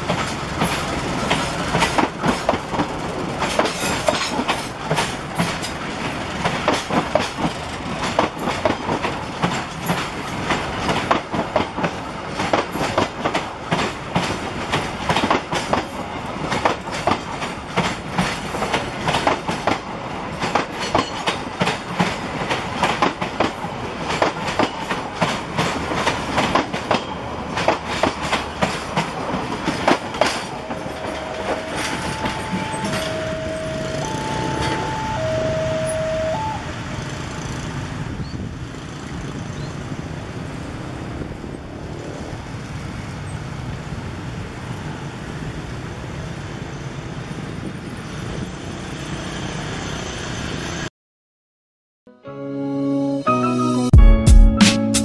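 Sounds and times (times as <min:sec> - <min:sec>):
train wheels clacking over rail joints: 0:00.0 - 0:33.3
train running gear rumble: 0:00.0 - 0:45.8.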